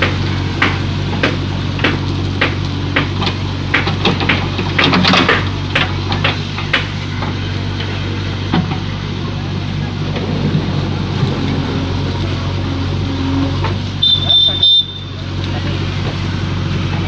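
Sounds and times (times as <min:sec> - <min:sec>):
sharp knocks: 0:00.0 - 0:07.4
diesel engine running: 0:00.0 - 0:17.0.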